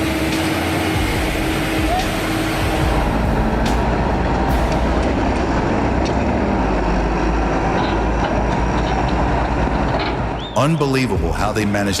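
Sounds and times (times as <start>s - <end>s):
heavy machinery rumble: 0.0s - 12.0s.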